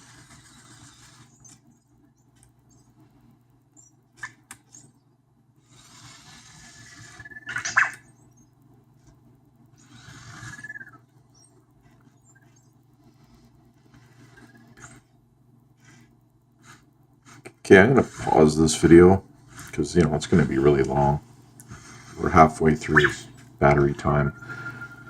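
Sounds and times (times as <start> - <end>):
robot tread motors whirring: 0.0 - 3.0, 5.6 - 9.1, 9.7 - 15.2, 15.8 - 21.1.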